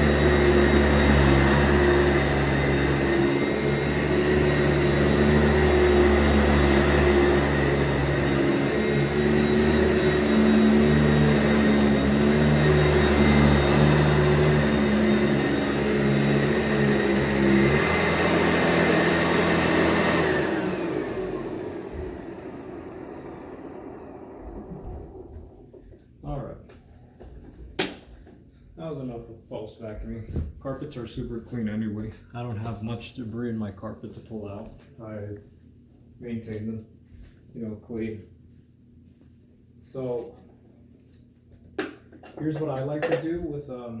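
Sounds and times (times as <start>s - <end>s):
vacuum cleaner running on carpet: 0.0s - 26.0s.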